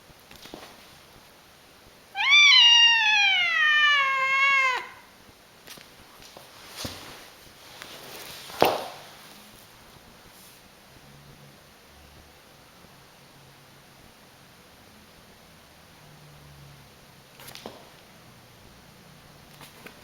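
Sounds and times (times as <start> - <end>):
cat yowling meow: 2.1 - 5.1.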